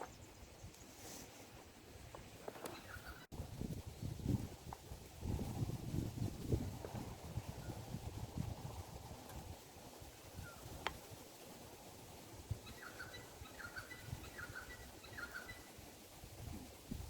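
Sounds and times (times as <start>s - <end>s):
bird calling faintly: 2.4s - 3.3s, 12.6s - 15.8s.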